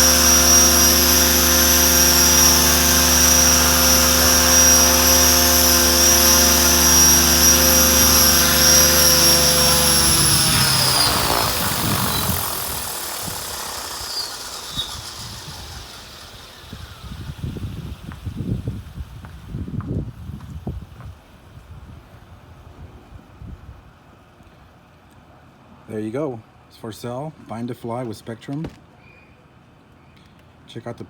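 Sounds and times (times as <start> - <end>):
rc helicopter motor whining: 0.0 - 19.7.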